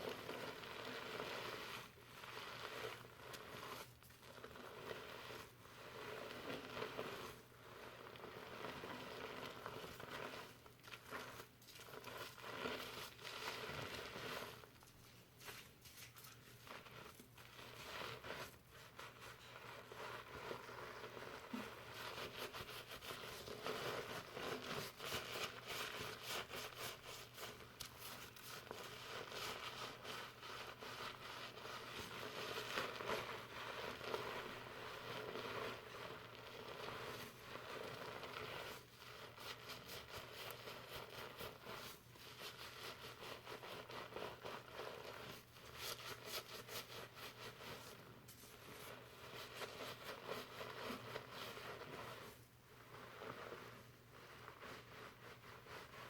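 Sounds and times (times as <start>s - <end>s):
fingers scrubbing lathered hair: 0.0s - 56.0s.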